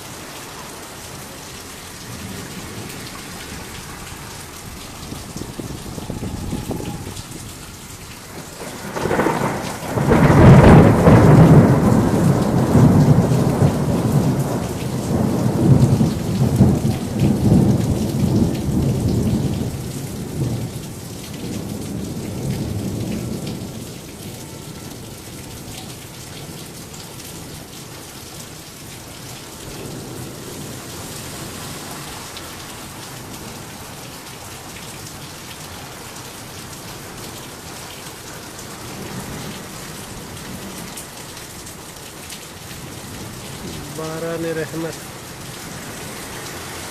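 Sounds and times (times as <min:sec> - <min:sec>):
heavy rain falling: 0:00.0 - 0:46.9
thunder rumbling: 0:02.1 - 0:20.8.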